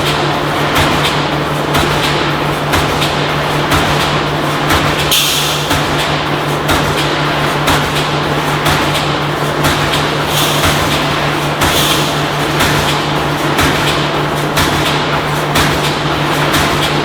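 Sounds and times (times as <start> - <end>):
welding machine humming: 9.2 - 17.0.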